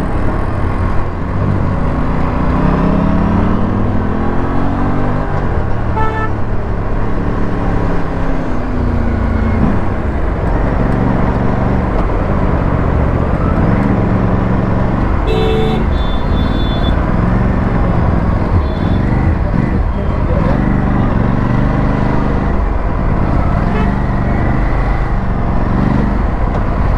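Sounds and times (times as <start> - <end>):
motorcycle engine revving: 1.4 - 26.9
vehicle horns honking: 5.9 - 6.5, 15.2 - 17.2, 18.4 - 19.3, 23.6 - 24.1.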